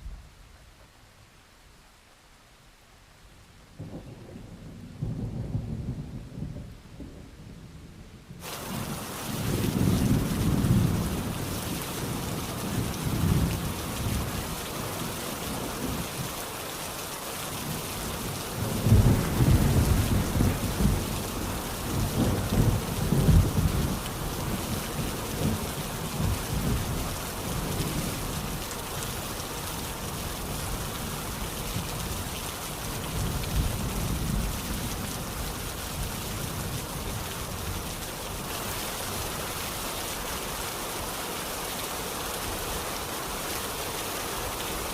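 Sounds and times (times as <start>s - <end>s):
steady rain: 0.0s - 44.9s
rolling thunder: 3.8s - 7.4s, 18.2s - 28.3s.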